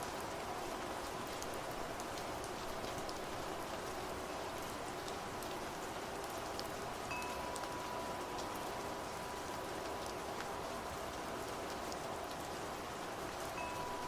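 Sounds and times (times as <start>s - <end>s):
steady rain falling: 0.0s - 14.0s
wind chime ringing: 7.1s - 8.3s, 13.6s - 14.0s.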